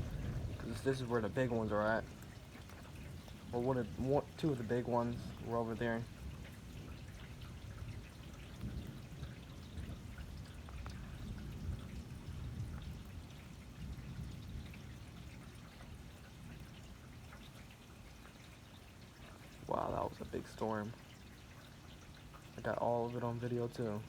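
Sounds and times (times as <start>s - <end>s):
thunder rumble: 0.0s - 17.0s
rain pouring and dripping: 0.0s - 24.0s.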